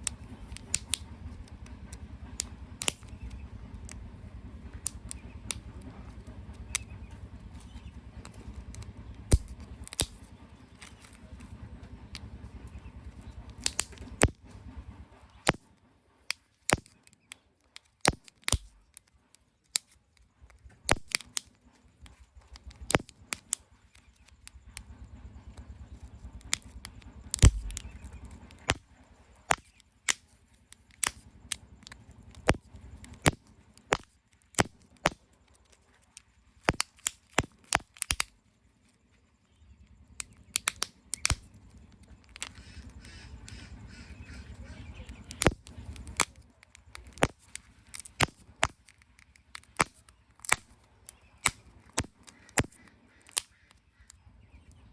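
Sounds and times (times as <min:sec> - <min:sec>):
plastic capsules clicking and snapping: 0:16.3 - 0:24.9, 0:25.5 - 0:38.4, 0:40.2 - 0:43.6, 0:45.1 - 0:54.8.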